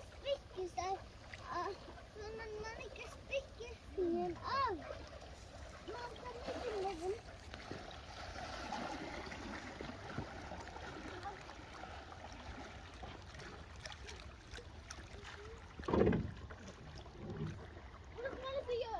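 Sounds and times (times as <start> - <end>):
water around a kayak: 0.0 - 18.9
low thump: 15.8 - 16.4.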